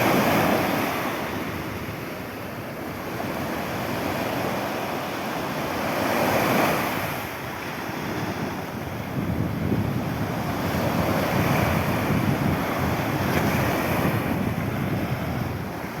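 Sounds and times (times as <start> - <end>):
sea waves breaking: 0.0 - 16.0
wind buffeting microphone: 5.5 - 16.0.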